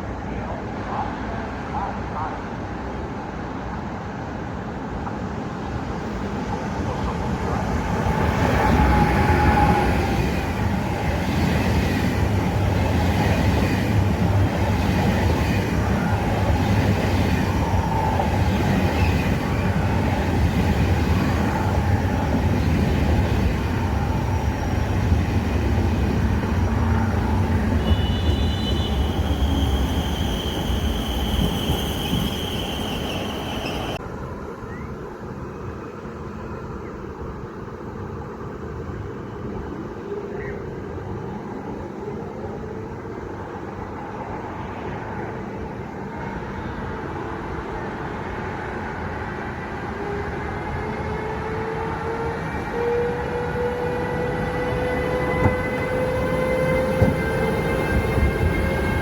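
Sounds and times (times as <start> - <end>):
train rumble: 0.0 - 34.5, 40.7 - 59.0
high steady squeal: 23.5 - 34.0.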